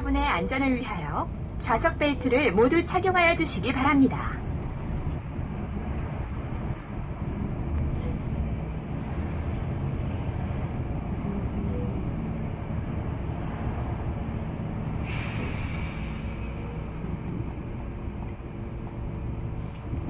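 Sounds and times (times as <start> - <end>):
bus engine and road noise: 0.0 - 20.0
hiss of released air: 15.0 - 16.4.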